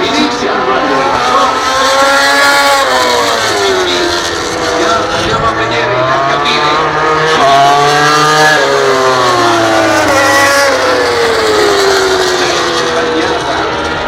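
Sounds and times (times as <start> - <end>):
racing motorcycles passing: 0.0 - 14.0.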